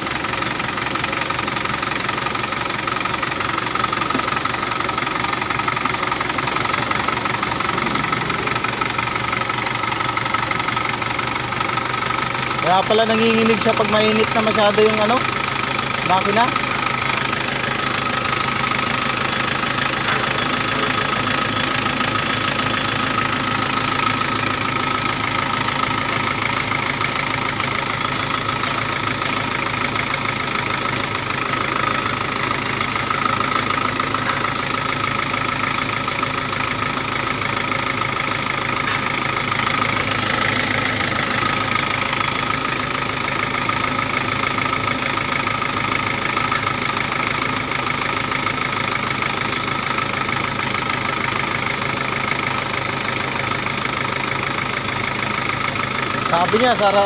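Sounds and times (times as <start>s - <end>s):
vehicle engine idling: 0.0s - 57.0s
high whine: 7.2s - 9.8s.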